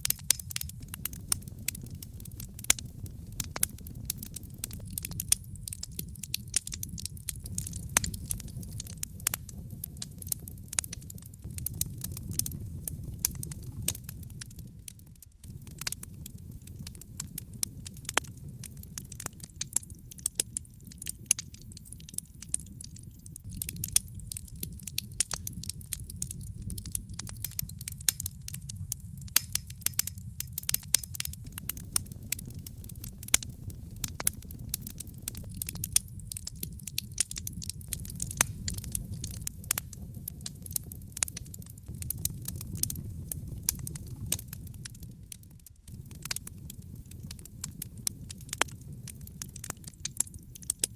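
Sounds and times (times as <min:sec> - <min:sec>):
wood fire crackling: 0:00.0 - 0:50.9.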